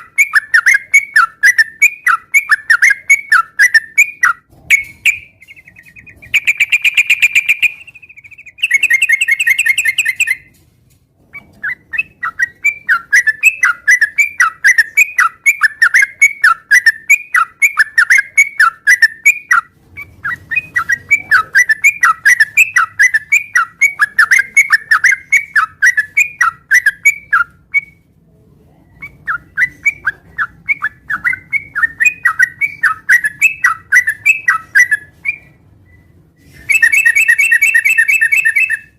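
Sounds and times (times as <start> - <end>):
buzzy bird trilling: 0.0 - 10.5, 11.4 - 28.0, 36.6 - 38.9
bird chirping song: 0.0 - 10.6, 11.2 - 28.1, 28.8 - 38.9.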